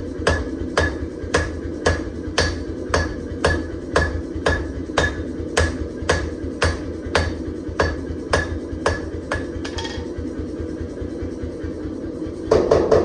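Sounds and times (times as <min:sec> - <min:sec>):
hammer striking steel on anvil: 0:00.2 - 0:10.2.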